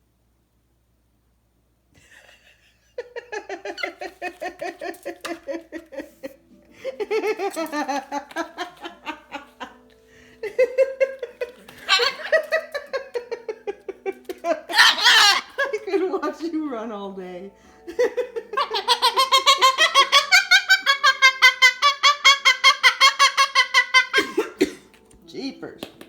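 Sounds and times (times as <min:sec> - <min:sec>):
woman laughing uncontrollably: 0:02.0 - 0:09.8, 0:10.4 - 0:16.0, 0:17.9 - 0:24.8.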